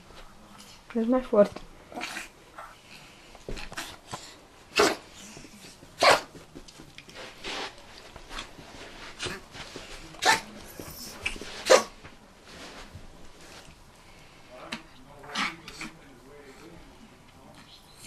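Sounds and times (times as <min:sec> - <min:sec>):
dog barking sharply: 0:04.7 - 0:05.0, 0:06.0 - 0:06.3.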